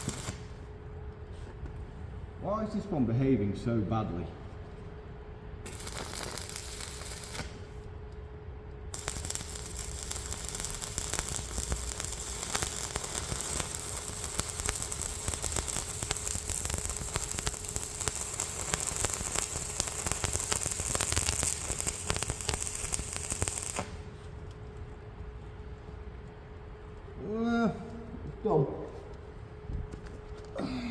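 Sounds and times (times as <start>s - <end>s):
arc welder crackling: 0.0s - 0.9s, 5.6s - 27.3s
faint steady hum: 0.0s - 30.9s.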